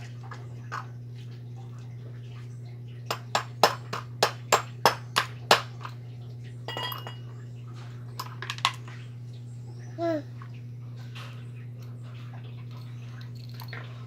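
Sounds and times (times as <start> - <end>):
steady low hum: 0.0 - 14.0
ringing metallic clink: 6.7 - 7.2.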